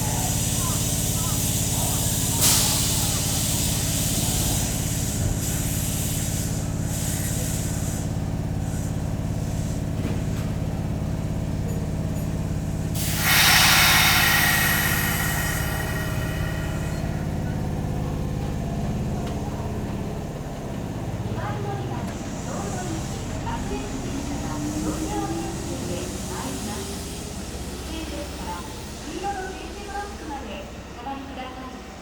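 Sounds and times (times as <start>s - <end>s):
train equipment humming: 0.0s - 32.0s
compressed air hiss: 13.0s - 18.0s.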